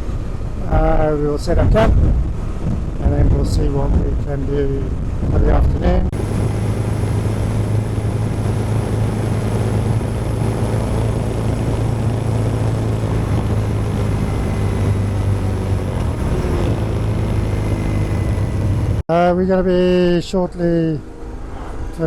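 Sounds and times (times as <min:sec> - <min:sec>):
wind noise: 0:00.0 - 0:19.0
road noise: 0:03.8 - 0:19.1
motorcycle engine cruising: 0:06.1 - 0:19.1.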